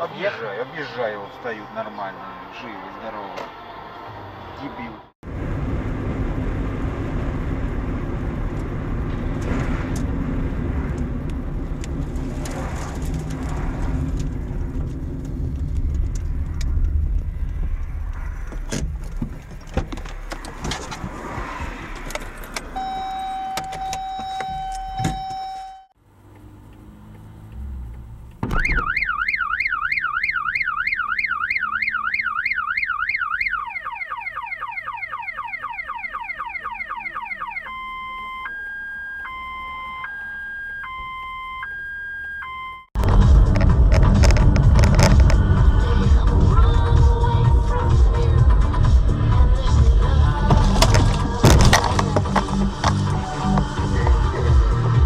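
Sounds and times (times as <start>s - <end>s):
car road noise rumble: 0.0s - 41.3s, 42.8s - 55.0s
car alarm wailing: 22.7s - 26.0s, 28.4s - 43.0s
steady electronic beep: 22.8s - 26.0s, 36.0s - 42.9s
knocks and clicks: 43.0s - 45.5s, 50.5s - 54.2s.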